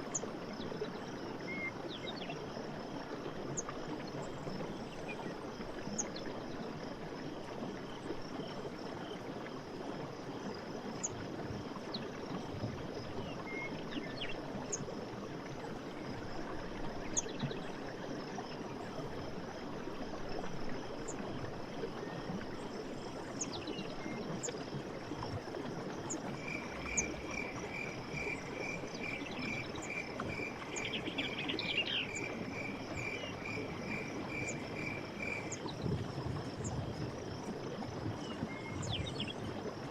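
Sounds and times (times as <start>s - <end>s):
pulsed frog or insect call: 25.9s - 37.4s.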